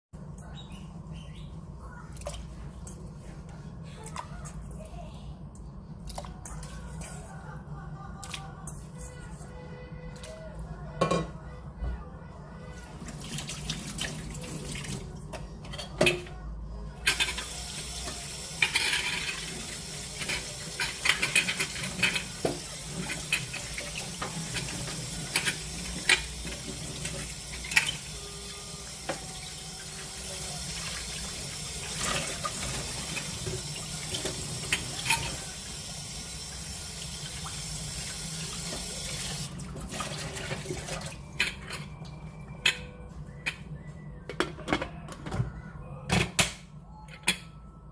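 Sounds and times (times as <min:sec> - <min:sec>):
tap water running into sink: 0:17.1 - 0:41.7.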